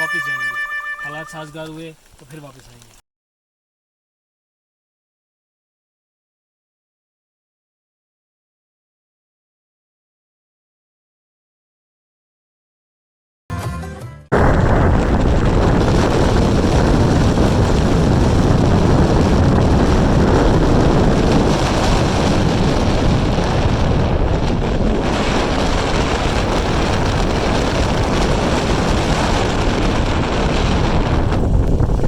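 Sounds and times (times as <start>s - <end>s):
wind buffeting microphone: 14.3s - 32.0s.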